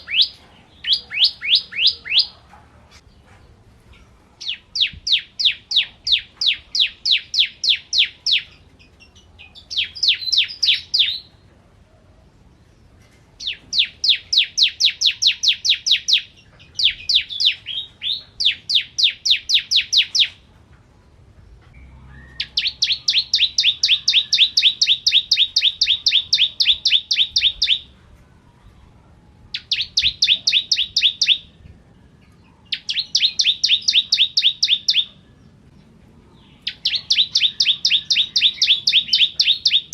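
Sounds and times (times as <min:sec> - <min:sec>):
bird singing sharp chirp trills: 0:00.0 - 0:02.3, 0:04.4 - 0:11.3, 0:13.4 - 0:20.4, 0:21.8 - 0:27.9, 0:29.5 - 0:31.6, 0:32.2 - 0:35.5, 0:36.4 - 0:39.9.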